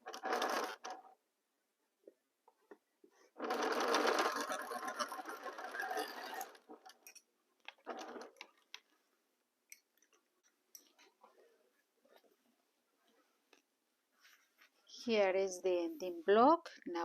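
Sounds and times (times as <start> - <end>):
sewing machine stitching: 0.0 - 1.2, 3.4 - 7.1, 7.7 - 8.6.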